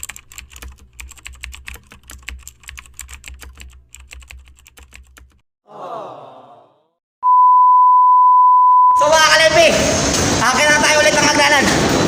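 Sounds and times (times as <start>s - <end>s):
rapid irregular clicking: 0.0s - 5.4s.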